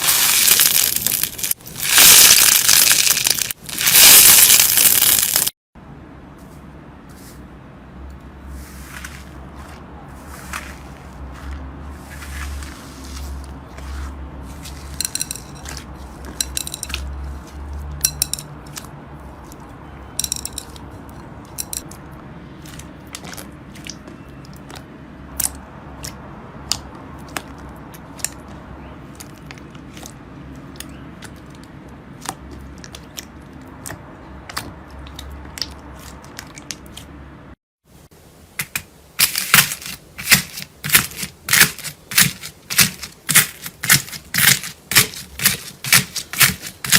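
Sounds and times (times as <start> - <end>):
slime crackling: 0.0 - 5.6, 38.6 - 46.9.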